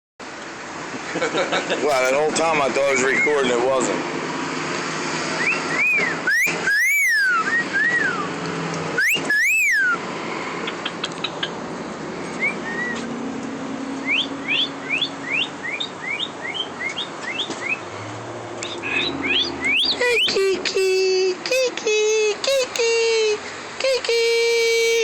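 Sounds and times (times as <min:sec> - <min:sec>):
parrot squawking: 0:05.4 - 0:08.2, 0:09.0 - 0:10.0, 0:12.4 - 0:13.0, 0:14.1 - 0:17.8, 0:18.6 - 0:21.8, 0:23.8 - 0:25.0
parrot chirping whistles: 0:05.4 - 0:08.3, 0:09.0 - 0:10.0, 0:12.4 - 0:13.0, 0:14.0 - 0:17.8, 0:19.0 - 0:21.0, 0:24.0 - 0:25.0.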